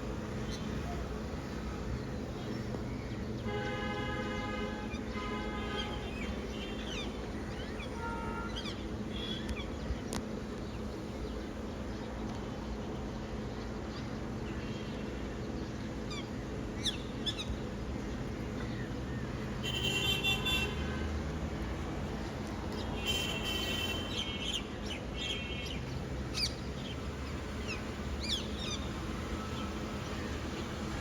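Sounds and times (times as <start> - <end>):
street traffic hum: 0.0 - 31.0.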